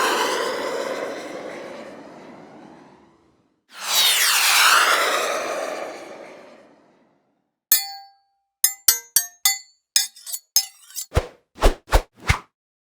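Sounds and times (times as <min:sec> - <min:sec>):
glassy clinks: 0:07.7 - 0:11.1.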